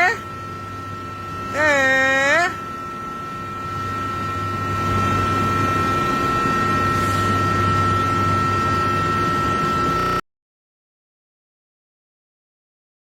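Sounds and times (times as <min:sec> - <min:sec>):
high whine: 0:00.0 - 0:10.2
mechanical hum: 0:00.0 - 0:10.2.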